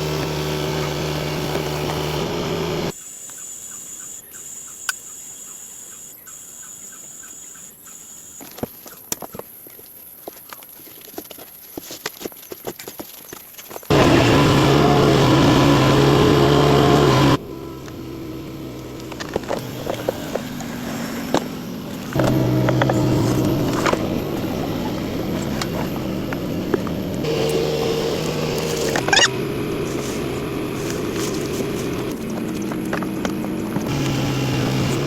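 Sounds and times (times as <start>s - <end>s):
engine running steadily: 0.0s - 2.9s, 13.9s - 35.0s.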